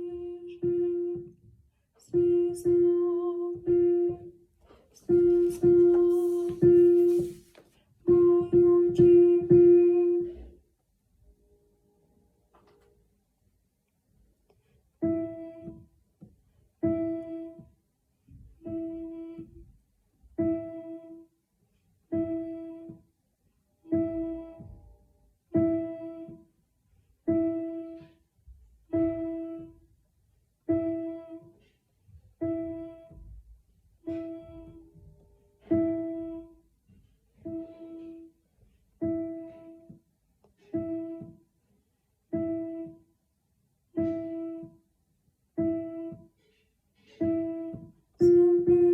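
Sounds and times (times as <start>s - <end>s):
piano note struck: 44.0s - 44.8s.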